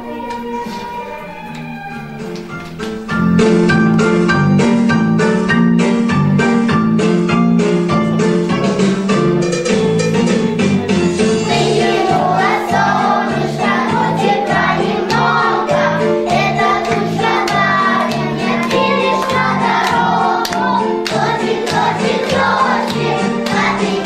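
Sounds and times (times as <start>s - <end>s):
children singing in unison: 11.4s - 24.0s.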